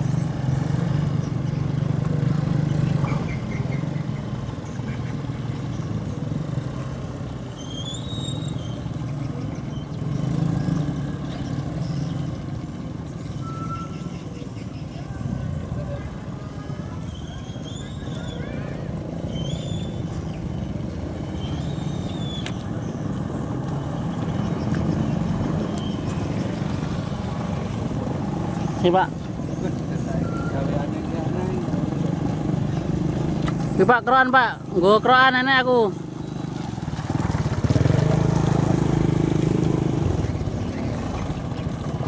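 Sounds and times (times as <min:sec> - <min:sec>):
diesel truck engine pulling hard: 0:05.5 - 0:12.5, 0:17.1 - 0:42.0.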